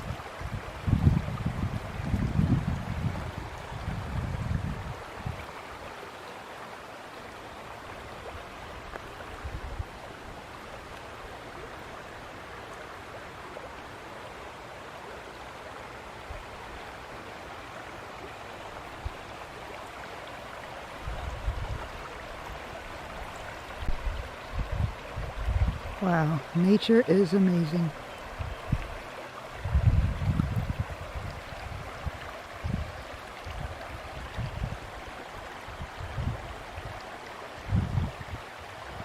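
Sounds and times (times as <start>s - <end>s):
wind buffeting microphone: 0.0s - 5.5s, 9.3s - 10.1s, 21.0s - 26.0s, 28.3s - 37.0s, 37.6s - 39.0s
river water rushing: 0.0s - 39.0s.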